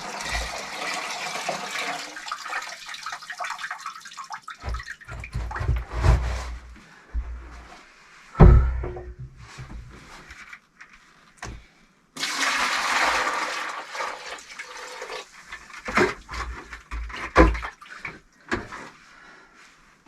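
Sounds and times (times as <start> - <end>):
wet mortar pouring and sloshing: 0.0 - 6.8
knocks: 8.4 - 9.8
heavy thump: 8.4 - 9.9.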